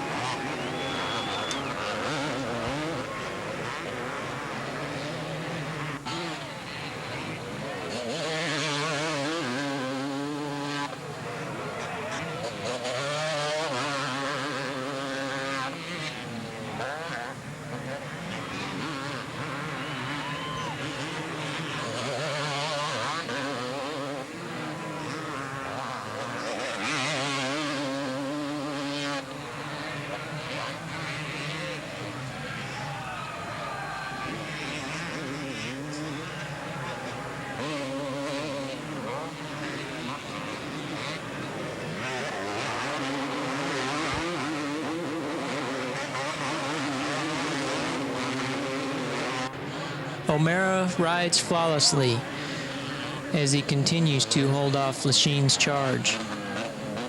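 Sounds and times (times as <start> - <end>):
two-stroke motocross engines racing: 0.0 - 57.0.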